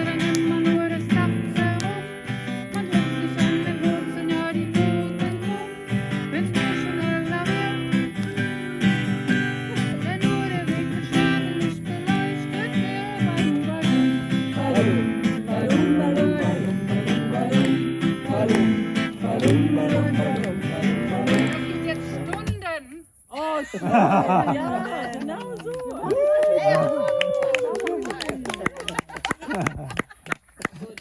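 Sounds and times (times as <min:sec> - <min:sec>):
strummed acoustic string chords: 0:00.0 - 0:22.5
voices singing along: 0:00.0 - 0:27.5.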